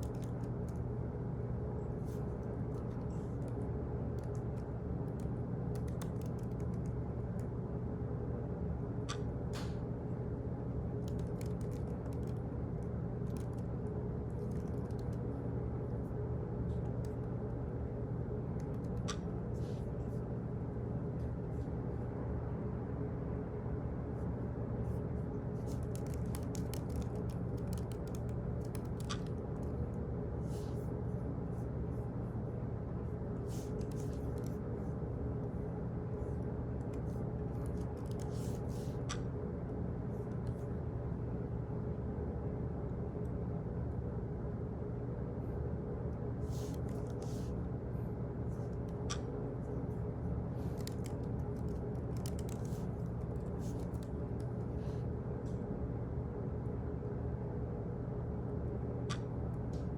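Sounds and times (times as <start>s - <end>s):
low hum: 0.0s - 59.9s
small clicks and taps: 2.7s - 7.5s, 11.0s - 13.7s, 25.7s - 29.7s, 50.8s - 54.5s.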